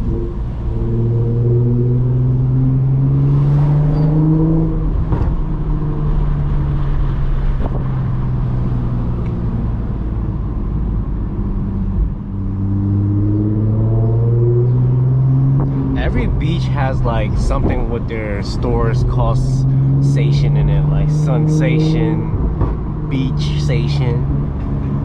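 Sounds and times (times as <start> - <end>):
car exhaust droning: 0.0 - 25.0.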